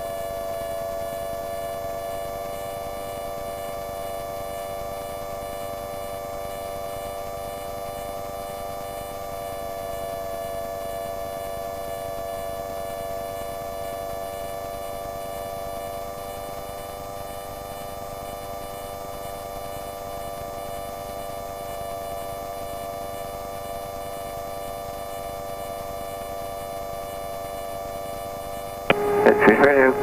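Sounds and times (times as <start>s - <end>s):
light aircraft engine drone: 28.0s - 30.0s.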